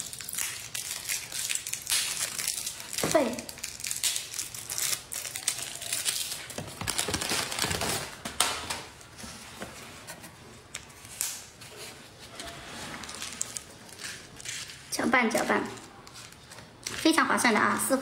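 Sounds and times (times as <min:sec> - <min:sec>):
crunching yogurt with crisp pieces: 0:00.0 - 0:07.9.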